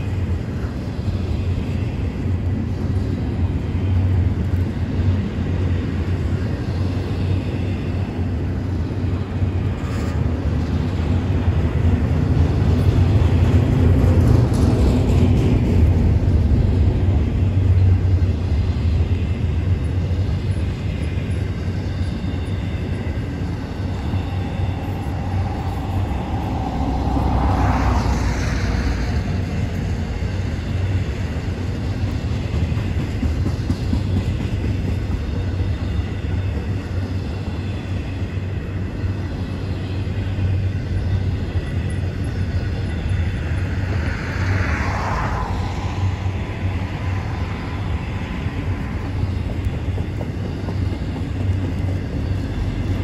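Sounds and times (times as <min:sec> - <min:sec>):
wheels rumbling on rail: 0:00.0 - 0:53.0
rising screech: 0:24.0 - 0:29.4.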